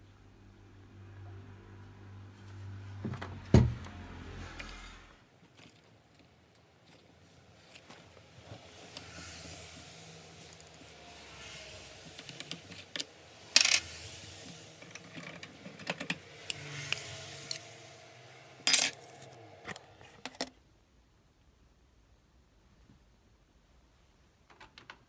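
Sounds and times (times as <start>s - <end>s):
small hard parts clattering: 13.6s - 13.9s, 18.7s - 19.3s.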